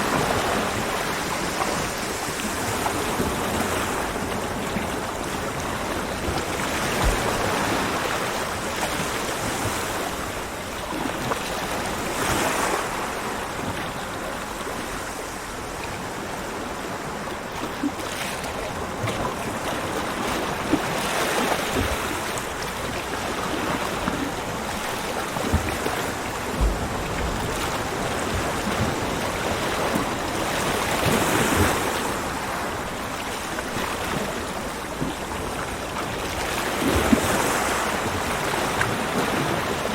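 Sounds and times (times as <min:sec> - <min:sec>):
ocean surf breaking: 0:00.0 - 0:15.4, 0:23.5 - 0:39.9
low thumps: 0:26.6 - 0:27.6.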